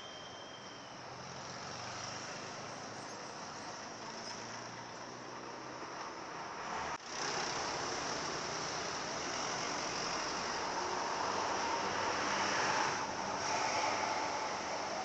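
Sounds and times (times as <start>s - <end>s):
vehicle rushing hiss: 7.1s - 15.0s.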